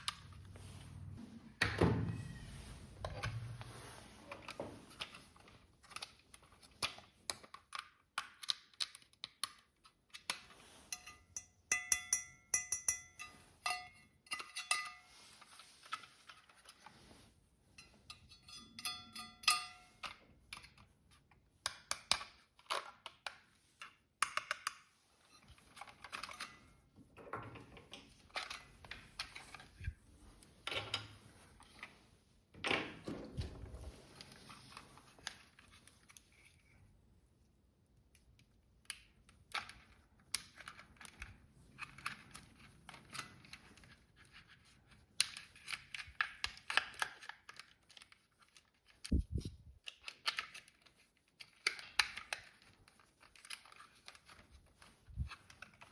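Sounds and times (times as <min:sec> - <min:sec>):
plastic toy parts clicking and rattling: 0:04.4 - 0:10.5, 0:19.3 - 0:26.7, 0:27.6 - 0:29.9, 0:37.9 - 0:55.9.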